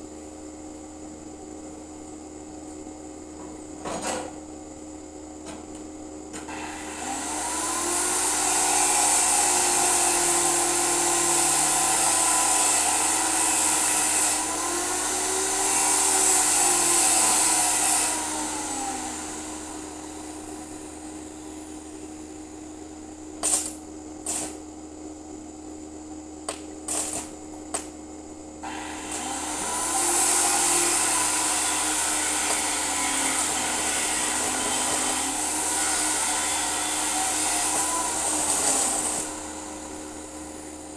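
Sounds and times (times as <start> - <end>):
electric power tool motor: 6.5 - 24.6, 26.5 - 27.9, 28.6 - 40.9.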